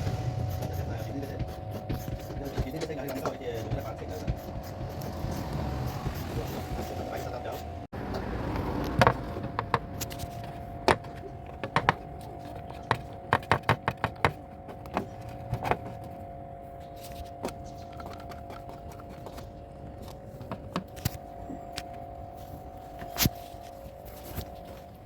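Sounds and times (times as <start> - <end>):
steady hum: 0.0 - 8.0.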